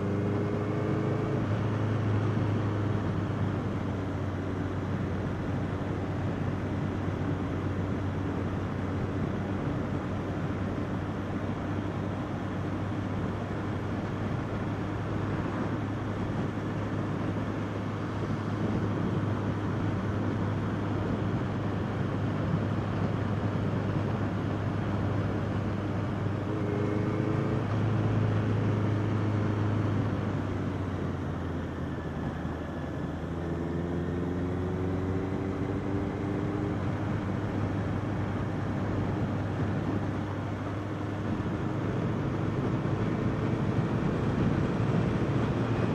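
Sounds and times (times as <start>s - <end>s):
wind and road noise: 0.0s - 45.9s.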